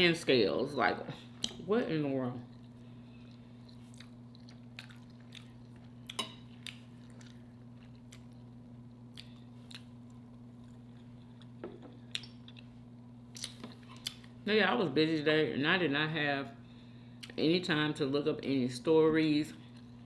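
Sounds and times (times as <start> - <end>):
steady low hum: 0.0 - 20.0
person chewing food: 2.5 - 14.4.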